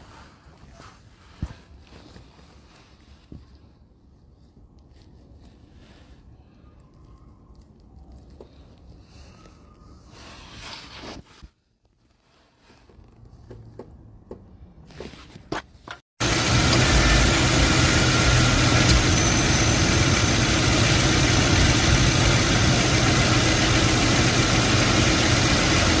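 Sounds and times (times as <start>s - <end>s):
car engine idling: 16.2s - 26.0s.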